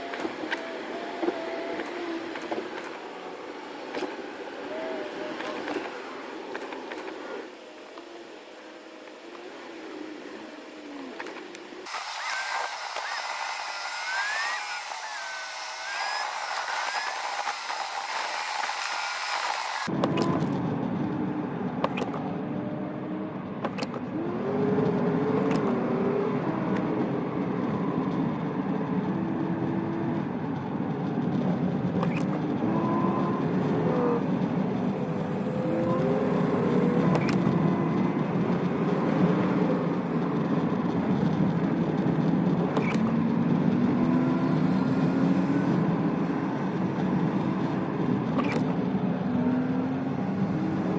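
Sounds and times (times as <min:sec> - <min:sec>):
car engine: 0:00.0 - 0:50.9
road noise in snow: 0:00.0 - 0:50.9.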